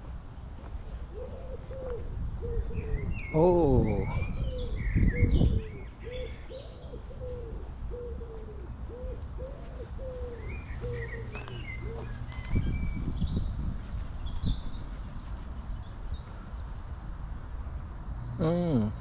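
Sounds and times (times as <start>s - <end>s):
small birds chirping: 0.6s - 17.1s.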